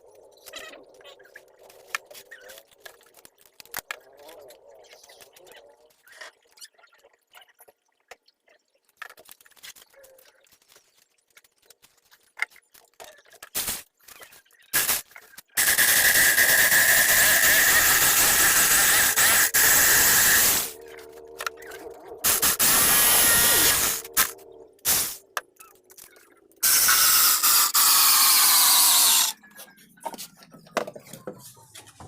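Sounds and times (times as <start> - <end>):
power tool squealing: 15.6 - 25.2, 26.0 - 29.5.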